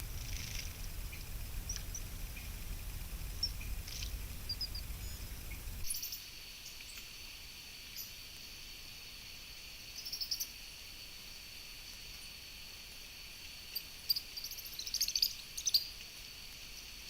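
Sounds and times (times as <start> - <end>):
high-pitched insect trill: 0.0 - 6.8, 7.9 - 10.7, 13.6 - 17.0
rapid insect chirps: 0.0 - 17.0.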